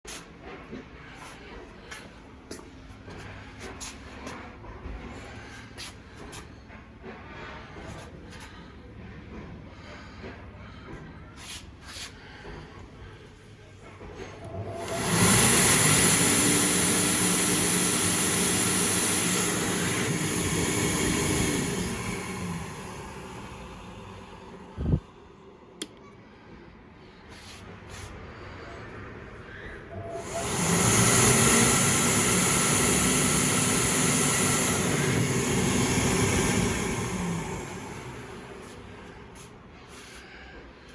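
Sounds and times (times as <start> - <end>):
low motor hum: 12.2 - 25.2, 29.8 - 39.4
hand dryer blowing air: 14.2 - 25.0, 29.9 - 40.6.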